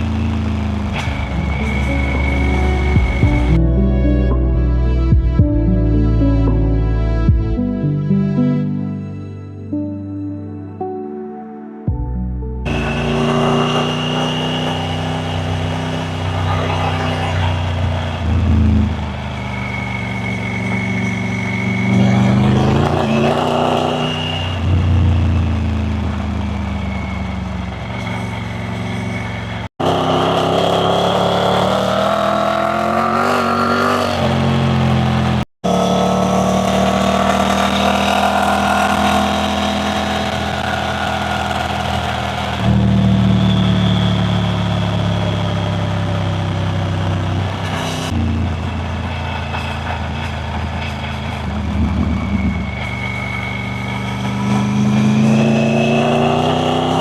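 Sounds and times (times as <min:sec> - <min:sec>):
motorcycle engine running: 0:00.0 - 0:03.7.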